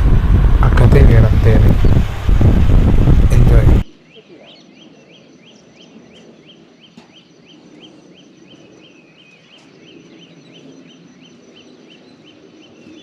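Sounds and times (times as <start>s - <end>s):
low steady rushing: 0.0s - 3.9s
bird chirping: 3.9s - 13.0s.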